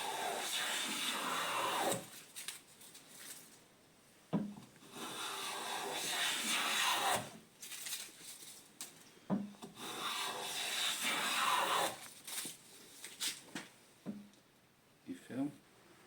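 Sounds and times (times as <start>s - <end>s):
hand plane shaving wood: 0.0s - 2.1s, 4.9s - 7.3s, 9.7s - 12.0s.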